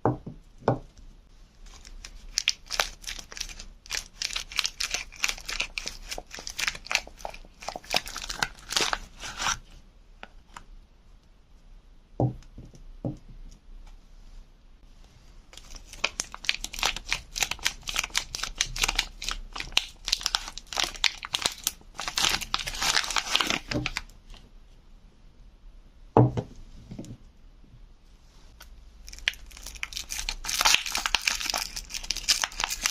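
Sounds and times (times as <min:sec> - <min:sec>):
wrapper crinkling and tearing: 0:01.7 - 0:09.6, 0:15.6 - 0:24.1, 0:29.0 - 0:32.9.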